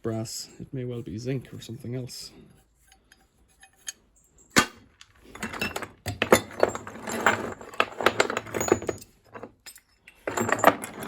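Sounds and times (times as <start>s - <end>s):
metal clink: 2.8s - 11.0s
metal scrap clattering: 2.8s - 11.0s.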